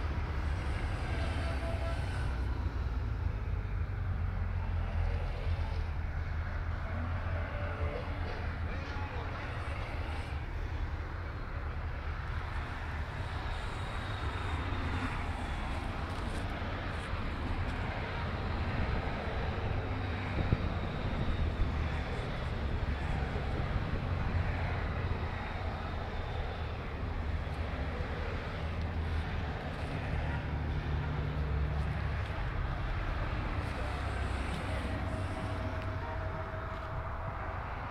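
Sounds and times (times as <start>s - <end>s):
motorcycles passing: 12.5s - 37.9s.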